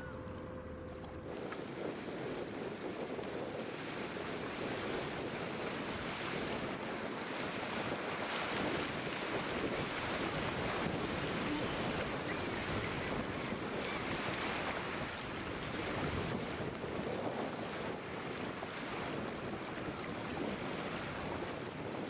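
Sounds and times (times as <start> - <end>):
faint high bird chirps: 0.0 - 0.7, 10.6 - 13.2
river waves: 0.0 - 21.7
wind gusting across microphone: 0.0 - 22.0.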